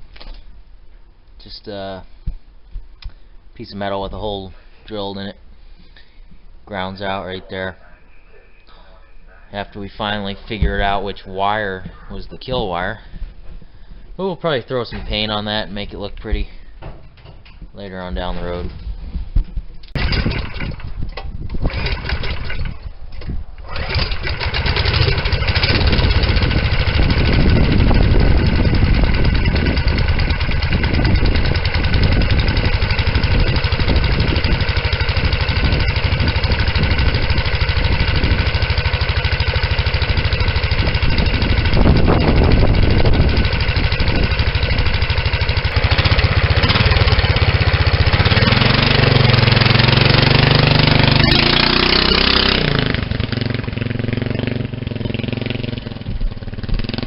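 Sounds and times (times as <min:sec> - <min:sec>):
small engine starting and running: 0:19.9 - 0:23.0, 0:23.6 - 0:57.0.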